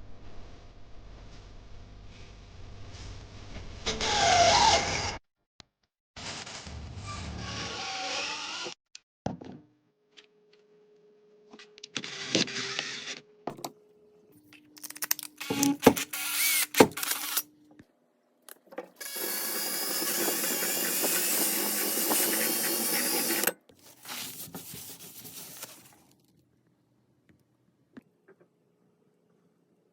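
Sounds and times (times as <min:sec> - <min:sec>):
power tool running: 0:15.4 - 0:17.4, 0:19.0 - 0:23.6
rubbing: 0:19.2 - 0:26.0.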